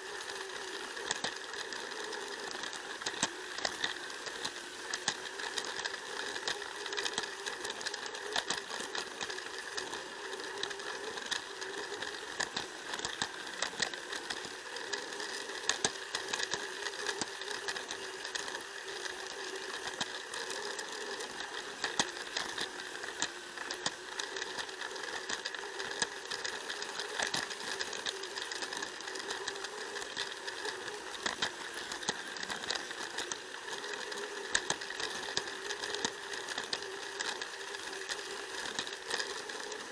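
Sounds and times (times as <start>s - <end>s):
toy train motor whine: 0.0s - 39.9s
wheels clicking over track joints: 0.0s - 39.9s.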